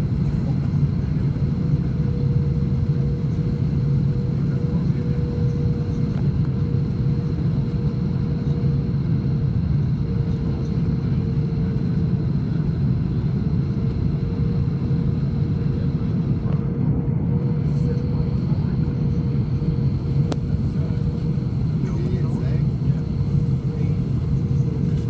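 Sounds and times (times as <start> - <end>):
airliner engines rumbling: 0.0 - 25.0
faint steady hum: 17.7 - 25.0.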